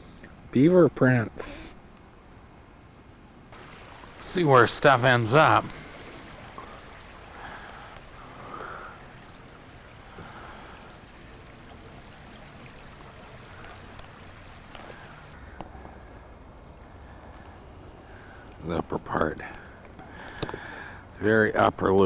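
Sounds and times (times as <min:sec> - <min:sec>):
water rushing in a creek: 0:03.5 - 0:15.4.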